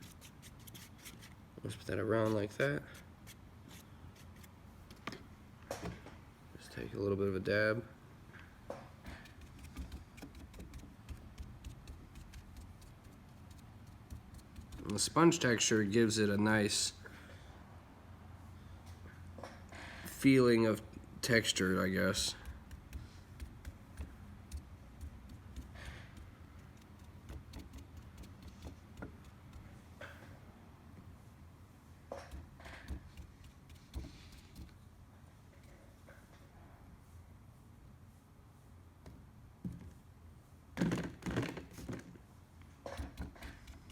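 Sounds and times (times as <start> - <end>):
sponge brush dabbing paint: 0.0 - 4.6, 9.1 - 15.6, 20.2 - 29.9, 32.3 - 34.8.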